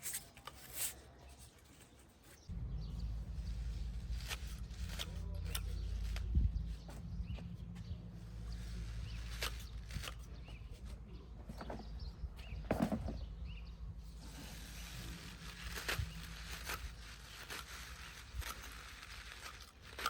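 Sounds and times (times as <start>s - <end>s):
rustles and clicks: 0.0s - 20.0s
steady low rumble: 2.5s - 17.2s.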